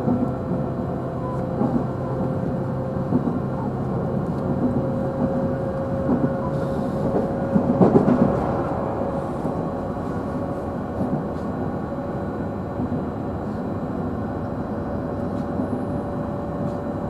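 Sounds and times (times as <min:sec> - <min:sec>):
train clatter: 0:00.0 - 0:11.6
train rolling rumble: 0:00.0 - 0:17.0.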